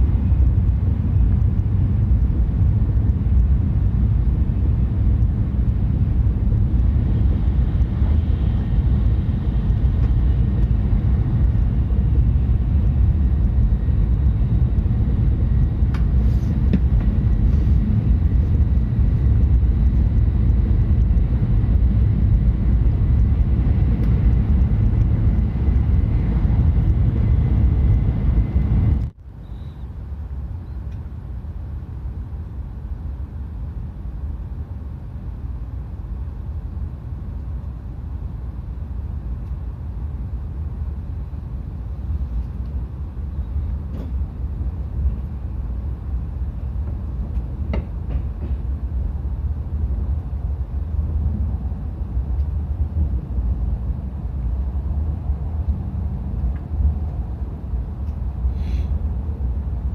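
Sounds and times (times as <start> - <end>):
faint high whine: 0.0 - 47.8
lighter train running noise: 0.0 - 59.9
train deep rumble: 0.0 - 59.9.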